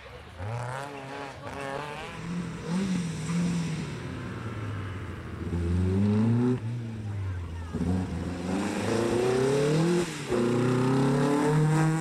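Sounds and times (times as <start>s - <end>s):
car engine revving hard: 7.7s - 12.0s.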